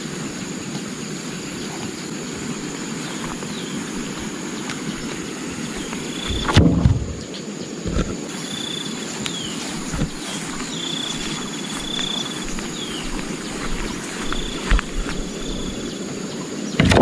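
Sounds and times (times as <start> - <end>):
high insect drone: 0.0 - 17.0
high whistled bird calls: 1.6 - 7.6, 8.4 - 16.9
loud thump: 6.3 - 7.2.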